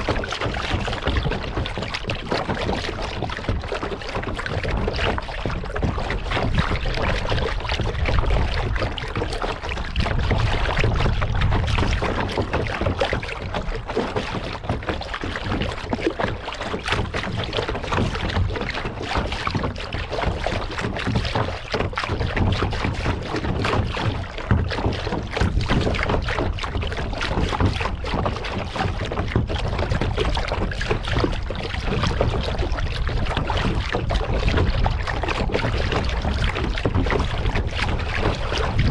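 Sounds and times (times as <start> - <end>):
water splashing around kayak: 0.0 - 38.9
wind rumble on microphone: 0.0 - 38.9.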